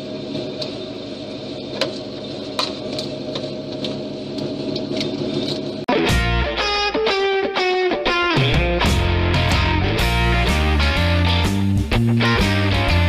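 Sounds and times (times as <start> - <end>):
distorted electric guitar music: 5.9 - 13.0.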